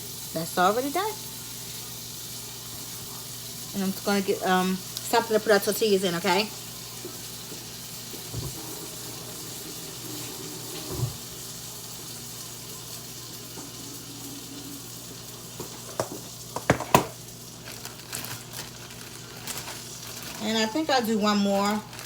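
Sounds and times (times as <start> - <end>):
tortilla sizzling in a pan: 0.0 - 22.0
soft thumps: 8.3 - 8.6, 10.8 - 11.2
kitchenware knocking: 15.6 - 17.2.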